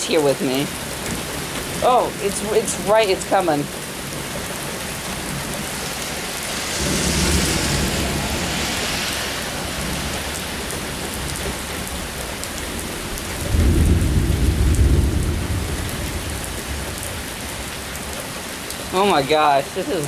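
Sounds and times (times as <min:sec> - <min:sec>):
heavy rain pouring: 0:00.0 - 0:20.0
thunder rumbling: 0:01.4 - 0:18.2
loud thunder clap: 0:06.4 - 0:12.1, 0:12.8 - 0:17.6.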